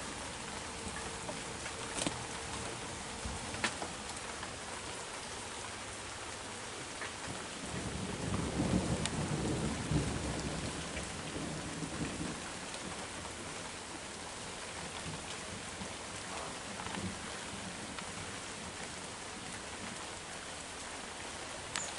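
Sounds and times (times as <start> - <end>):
heavy rain: 0.0 - 21.9
low thunder roll: 7.6 - 12.4.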